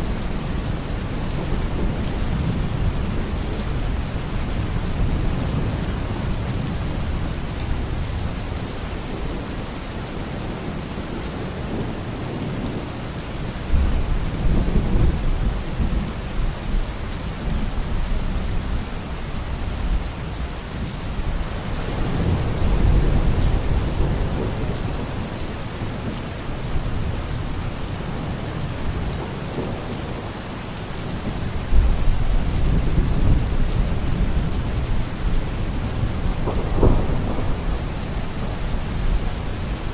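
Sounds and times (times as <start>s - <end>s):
heavy rain: 0.0s - 39.9s
thunder rumbling: 31.2s - 39.9s.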